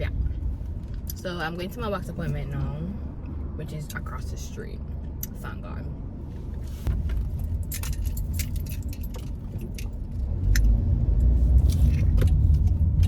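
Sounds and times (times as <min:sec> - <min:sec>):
low rumble: 0:00.0 - 0:13.0
metallic clicking and jingling: 0:07.3 - 0:10.2.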